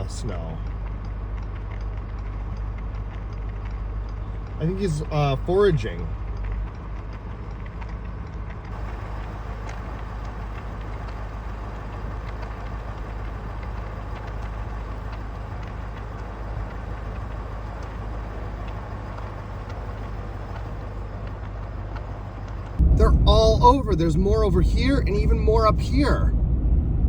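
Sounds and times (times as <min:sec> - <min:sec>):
truck engine and road rumble: 0:00.0 - 0:27.0
faint ticks: 0:06.1 - 0:22.8.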